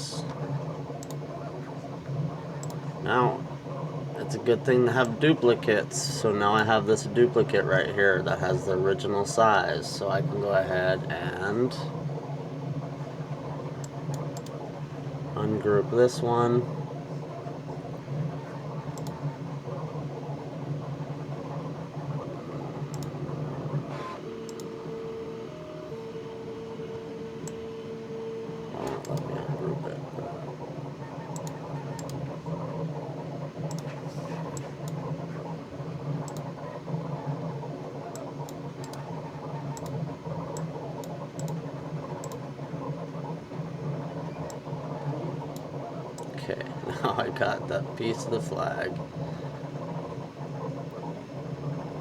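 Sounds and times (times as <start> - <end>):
low mechanical hum of machinery: 0.0 - 52.0
computer mouse clicks: 1.0 - 1.3, 2.5 - 2.9, 13.8 - 14.6, 18.4 - 19.3, 22.9 - 23.2, 24.4 - 24.9, 27.4 - 27.7, 28.8 - 29.6, 31.2 - 32.3, 33.6 - 35.1, 36.2 - 36.5, 38.0 - 42.5, 44.3 - 44.7, 45.5 - 46.4.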